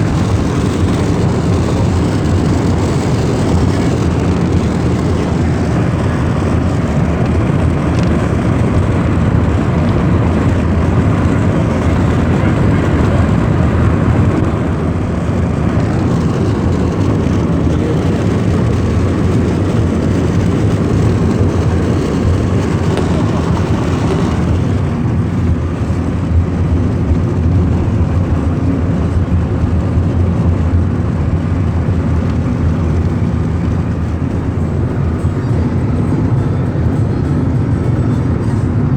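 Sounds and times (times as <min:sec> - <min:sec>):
car road and engine noise: 0:00.0 - 0:38.9.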